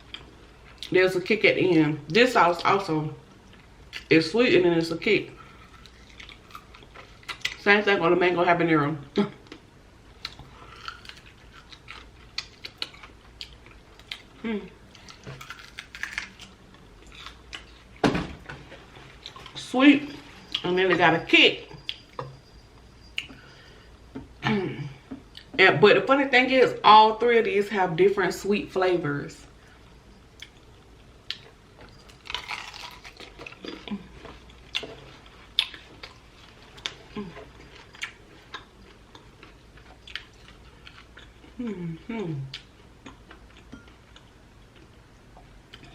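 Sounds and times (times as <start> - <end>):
chewing and crunching: 5.3 - 7.7, 9.3 - 18.0, 18.7 - 20.8, 30.3 - 41.7, 42.4 - 45.9
person humming: 41.6 - 42.5.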